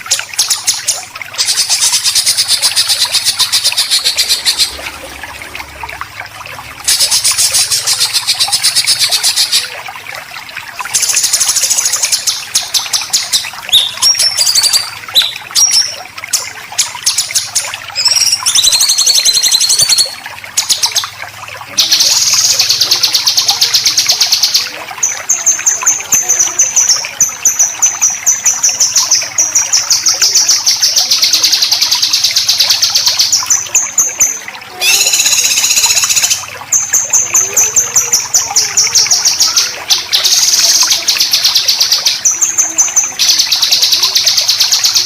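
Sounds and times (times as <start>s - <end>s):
bird whistled notes: 13.7s - 15.9s, 18.0s - 20.1s, 34.8s - 36.4s.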